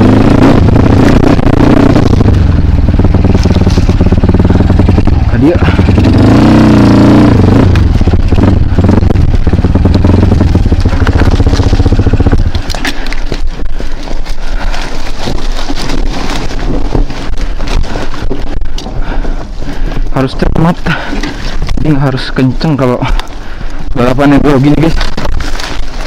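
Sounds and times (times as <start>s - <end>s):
dirt bike engine revving: 0.0s - 18.2s
engine crackling: 0.0s - 26.0s.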